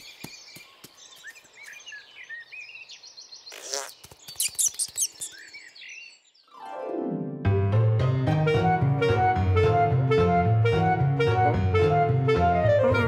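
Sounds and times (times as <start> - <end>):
small birds chirping: 0.0 - 6.6.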